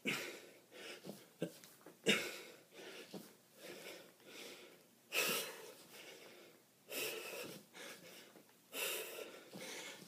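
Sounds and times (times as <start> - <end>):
man breathing hard: 2.1 - 10.0.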